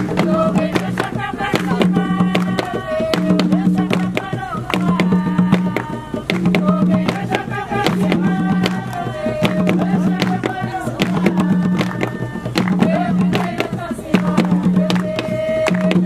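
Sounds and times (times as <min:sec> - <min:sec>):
hand drums playing rhythm: 0:00.0 - 0:16.0
voices singing: 0:00.0 - 0:16.0.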